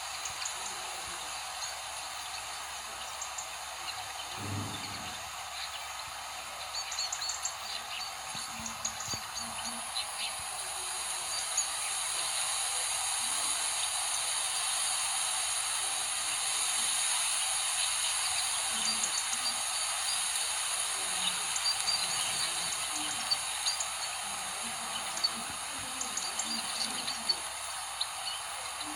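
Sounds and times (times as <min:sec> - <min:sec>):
insect drone: 0:00.0 - 0:28.9
small birds chirping: 0:00.0 - 0:28.9.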